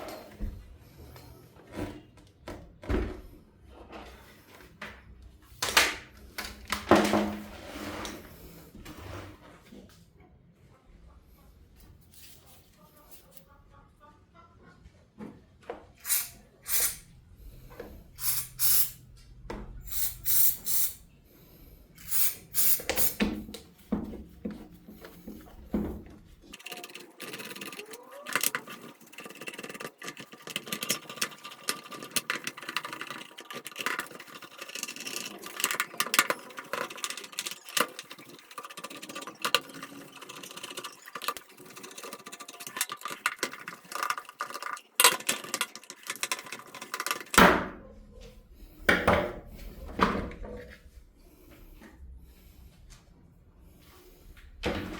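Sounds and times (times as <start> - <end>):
rapid clicking and rattling: 26.4 - 47.4.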